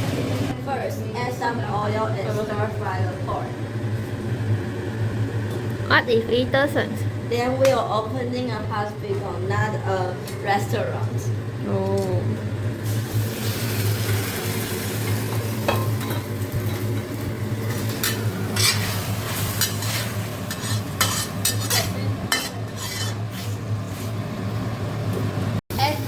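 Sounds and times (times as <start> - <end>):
meat sizzling in oil: 12.8 - 24.1
spatula scraping a pan: 17.7 - 24.2.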